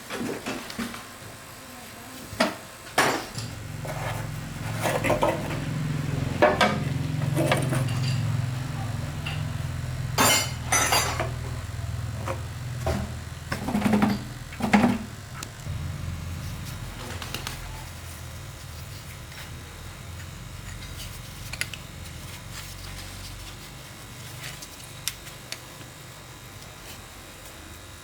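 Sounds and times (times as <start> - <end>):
low motor hum: 3.3 - 24.3.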